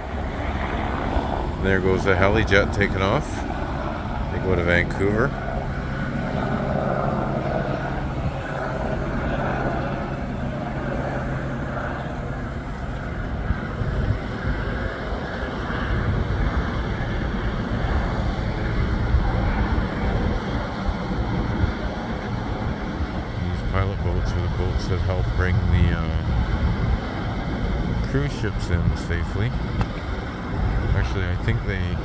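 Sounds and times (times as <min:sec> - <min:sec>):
helicopter drone: 0:00.0 - 0:32.0
wind rumbling on microphone: 0:00.0 - 0:32.0.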